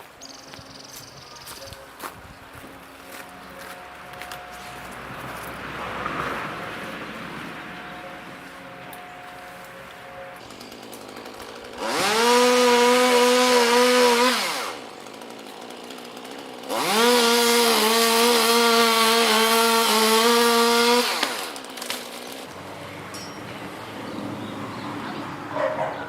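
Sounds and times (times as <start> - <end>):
chainsaw revving: 3.2 - 22.7.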